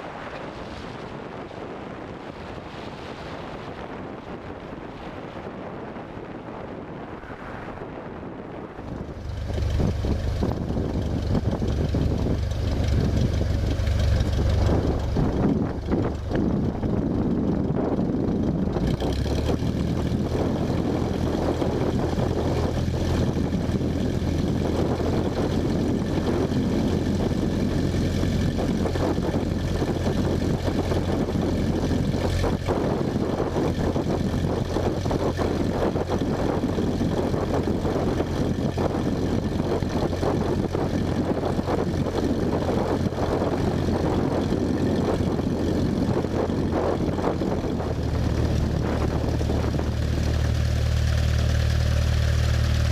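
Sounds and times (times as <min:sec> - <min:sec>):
propeller engine drone: 0:00.0 - 0:52.9.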